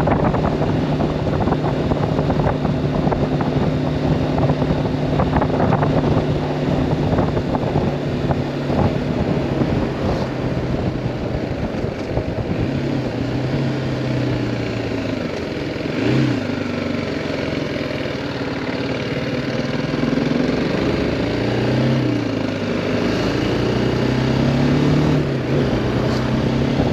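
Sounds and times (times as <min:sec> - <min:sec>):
wind rushing over microphone: 0:00.0 - 0:15.0, 0:22.9 - 0:26.9
motorcycle engine revving: 0:00.0 - 0:26.9.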